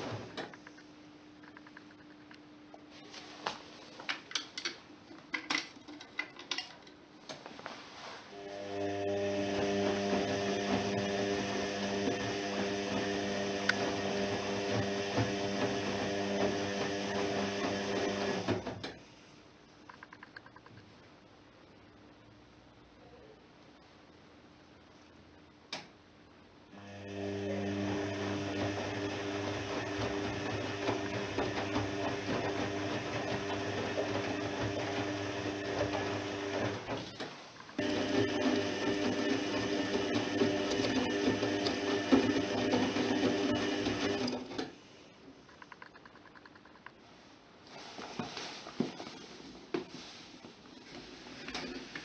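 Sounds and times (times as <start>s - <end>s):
washing machine motor hum: 0.0s - 0.7s, 8.3s - 19.0s, 26.7s - 44.8s.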